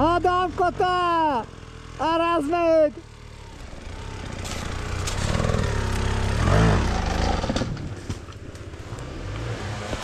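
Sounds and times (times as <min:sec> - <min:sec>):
dirt bike engine revving: 0:03.1 - 0:10.0.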